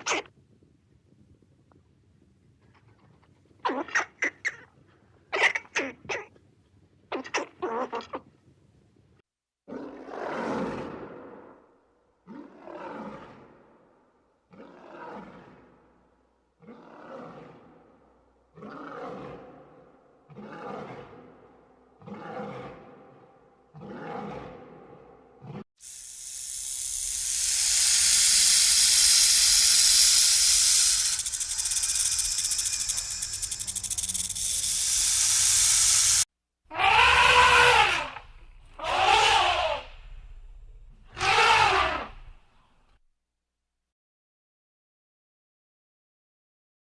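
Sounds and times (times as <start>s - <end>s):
lion roaring: 16.6s - 17.8s, 18.6s - 25.6s
loud high hissing: 25.8s - 36.3s.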